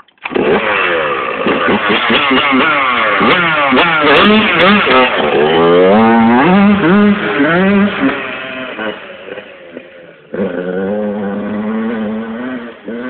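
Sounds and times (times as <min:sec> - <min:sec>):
dirt bike engine revving: 0:00.2 - 0:13.0.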